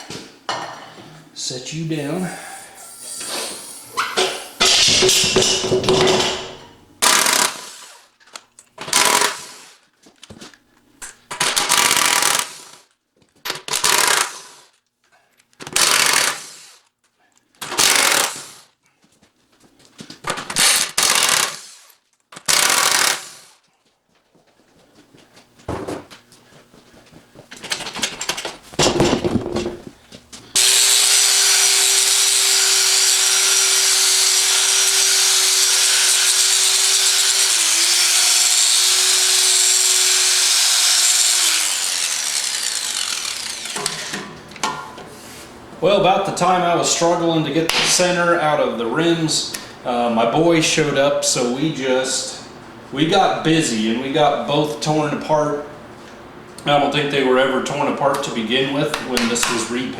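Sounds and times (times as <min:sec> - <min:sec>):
power tool running: 0:02.1 - 0:08.1, 0:08.8 - 0:09.7, 0:11.6 - 0:12.8, 0:15.8 - 0:16.6, 0:17.7 - 0:18.6, 0:20.6 - 0:21.7, 0:22.5 - 0:23.5, 0:28.8 - 0:44.8
pneumatic impact wrench bursts: 0:02.4 - 0:05.7, 0:06.3 - 0:08.1, 0:08.8 - 0:09.8, 0:11.4 - 0:12.9, 0:13.7 - 0:14.7, 0:15.8 - 0:16.8, 0:17.6 - 0:18.7, 0:20.5 - 0:23.6, 0:30.5 - 0:44.4.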